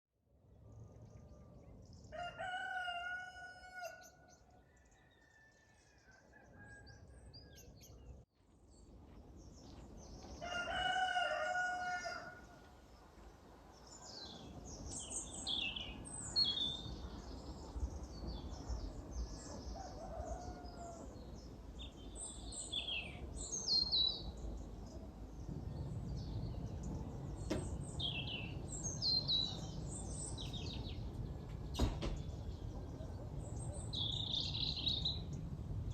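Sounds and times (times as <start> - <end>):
rooster crowing: 2.1 - 7.7, 10.4 - 12.6, 19.8 - 21.2
small birds chirping: 12.4 - 35.9.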